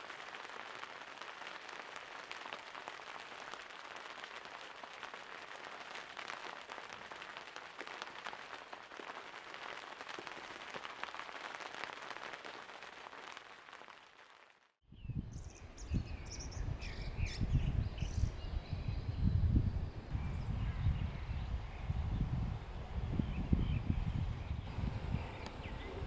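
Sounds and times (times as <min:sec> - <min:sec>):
rain patter: 0:00.0 - 0:14.7.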